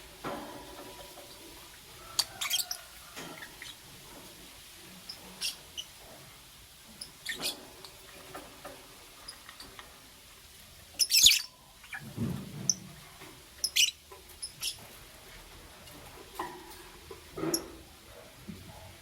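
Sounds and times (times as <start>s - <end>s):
lovebirds chirping: 5.0s - 6.0s, 7.0s - 8.0s, 11.0s - 12.0s, 13.6s - 14.8s.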